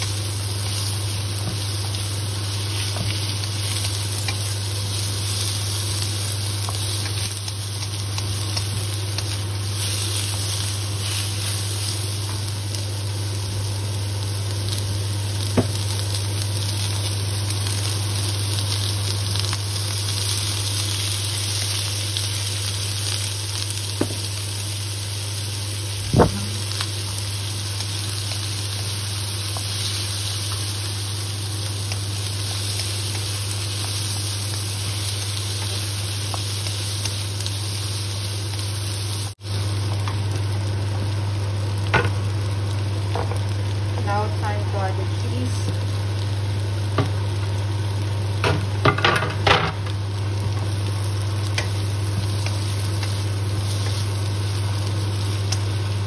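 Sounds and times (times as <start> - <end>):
steady low hum: 0.0 - 36.1
onion and garlic sizzling: 0.0 - 56.0.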